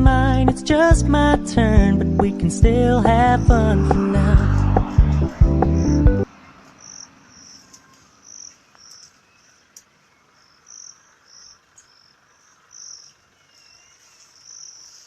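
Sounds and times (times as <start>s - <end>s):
crickets chirping: 3.0s - 15.0s.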